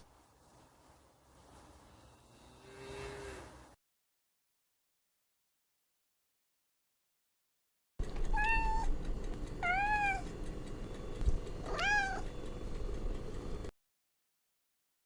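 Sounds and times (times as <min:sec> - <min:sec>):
cat meowing: 0:08.3 - 0:08.9, 0:09.6 - 0:10.3, 0:11.6 - 0:12.3.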